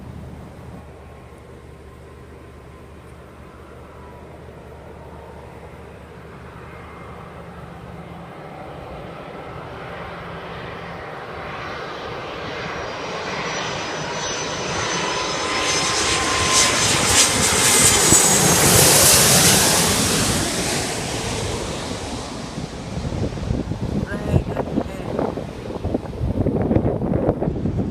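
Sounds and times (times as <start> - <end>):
jet airliner flying past: 0.0 - 27.9.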